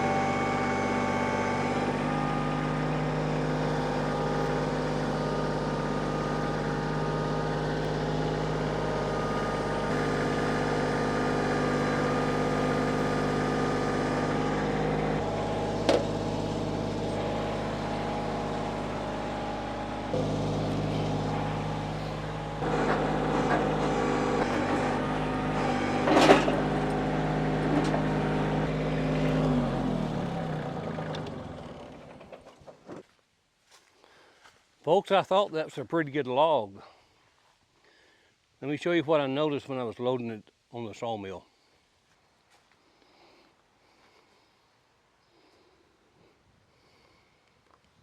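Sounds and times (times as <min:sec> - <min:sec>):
machine engine running: 0:00.0 - 0:32.5
engine spinning down: 0:00.0 - 0:32.7
sharp knocks: 0:15.8 - 0:16.2.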